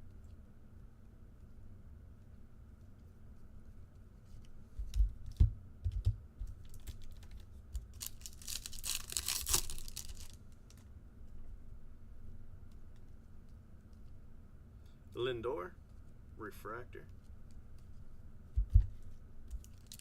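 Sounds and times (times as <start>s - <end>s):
card pack wrapper tearing: 6.7s - 10.4s, 19.6s - 20.0s.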